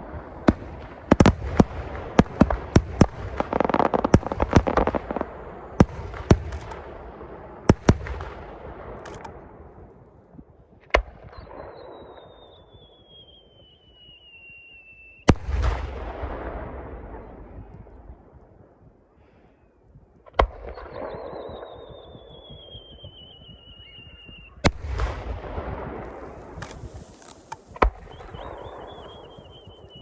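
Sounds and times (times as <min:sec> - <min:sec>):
fireworks crackling: 0:26.1 - 0:29.1.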